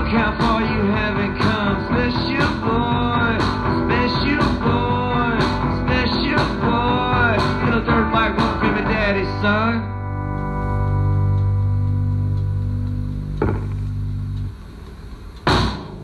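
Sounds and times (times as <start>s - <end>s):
drums keeping a steady beat: 0.0s - 9.5s, 13.0s - 16.0s
rock band playing: 0.0s - 14.0s
melodic guitar lead line: 0.0s - 14.4s
guitar chord ringing: 9.8s - 14.4s.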